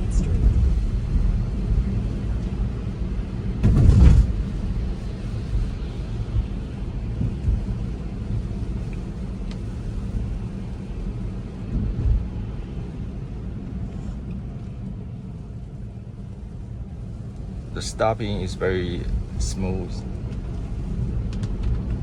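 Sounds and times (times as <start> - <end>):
tyre and road noise in car: 0.0 - 22.0
soft bumps: 3.6 - 5.7.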